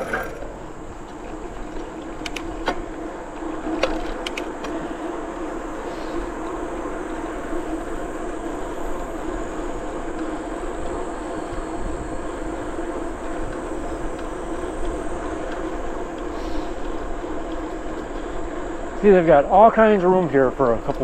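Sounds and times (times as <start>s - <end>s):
bicycle tyres humming on path: 0.0s - 21.0s
wind on microphone: 8.9s - 16.9s.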